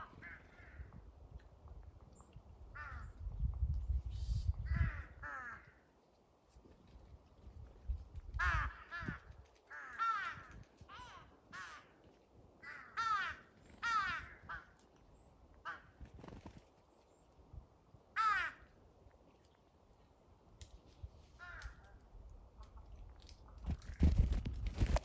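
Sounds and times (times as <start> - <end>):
crows cawing: 0.0 - 0.9, 2.8 - 3.2, 4.7 - 5.9, 8.4 - 14.8, 15.6 - 16.0, 18.2 - 18.8, 21.4 - 22.0.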